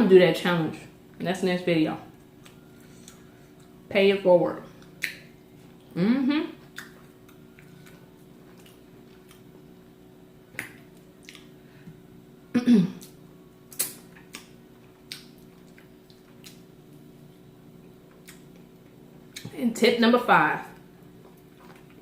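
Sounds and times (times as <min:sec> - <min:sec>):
person humming mm: 0:05.9 - 0:06.6.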